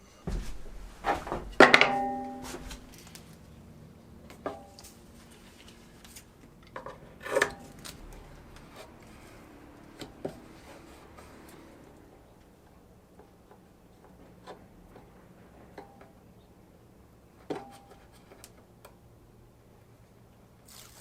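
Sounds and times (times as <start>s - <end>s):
wooden plate knocking: 0.3s - 2.9s
short ringing: 1.7s - 2.9s.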